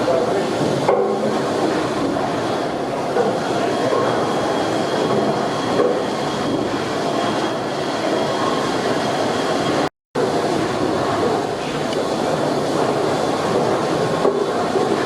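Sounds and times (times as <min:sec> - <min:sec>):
steam engine clattering: 0:00.0 - 0:08.6.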